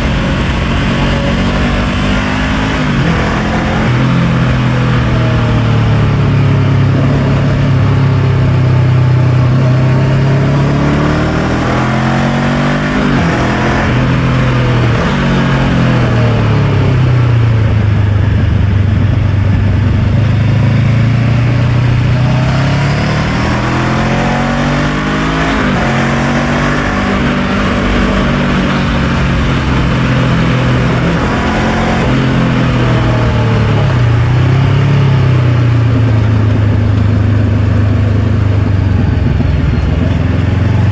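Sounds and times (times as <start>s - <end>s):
motorcycle engine: 0.0s - 40.9s
road noise while riding: 0.0s - 40.9s
wind: 0.0s - 40.9s.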